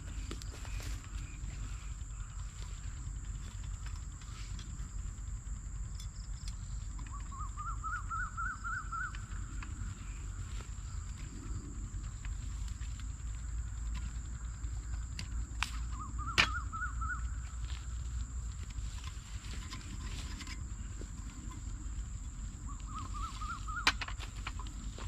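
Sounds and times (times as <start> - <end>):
insect drone: 0.0 - 25.0
low rumble: 0.0 - 25.0
sharp clicks: 12.2 - 20.6.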